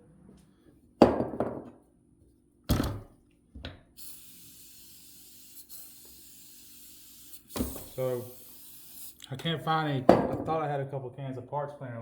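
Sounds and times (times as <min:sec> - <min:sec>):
faint steady hiss: 0:03.9 - 0:10.1.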